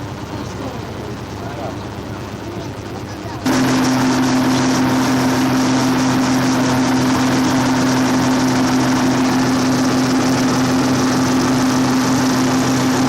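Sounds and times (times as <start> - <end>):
ship engine drone: 0.0 - 13.0
water rushing: 3.5 - 13.0.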